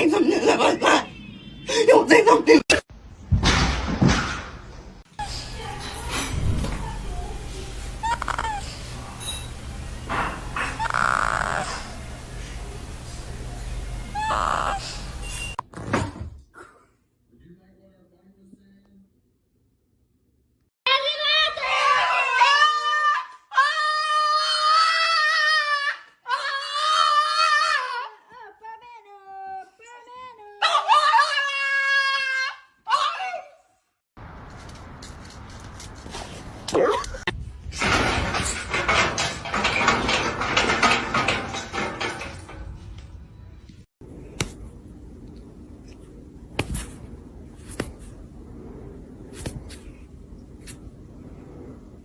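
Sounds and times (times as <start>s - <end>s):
low background hum: 5.2s - 15.6s
dog howling: 6.7s - 15.5s.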